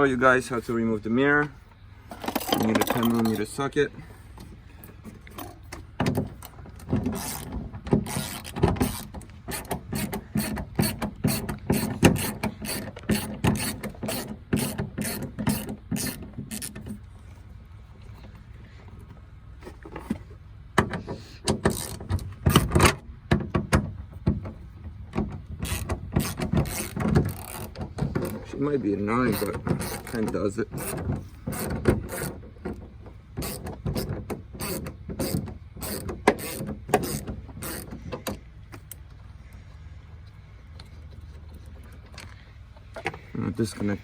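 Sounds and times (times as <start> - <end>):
ratchet wrench clicking: 7.2 - 16.8, 25.6 - 28.4, 33.4 - 38.0.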